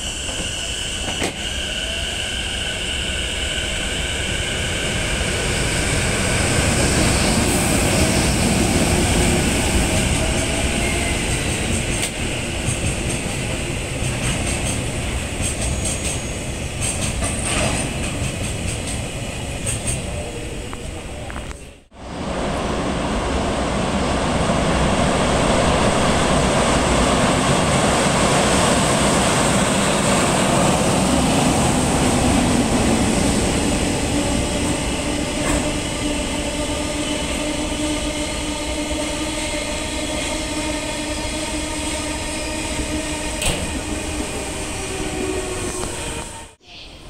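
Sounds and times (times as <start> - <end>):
train wheels rumbling on rails: 0.0 - 46.6
rail joint clacks: 9.9 - 21.6, 35.3 - 35.9, 43.3 - 44.0.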